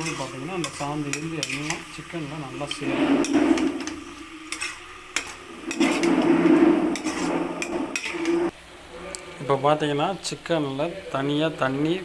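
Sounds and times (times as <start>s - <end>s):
ladle scraping in cooking pot: 0.0s - 8.5s.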